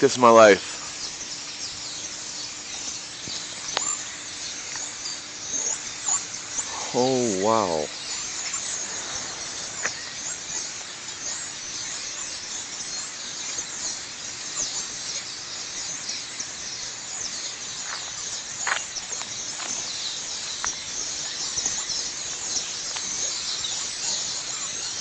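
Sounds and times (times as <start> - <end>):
flock of birds chirping: 0.0 - 25.0.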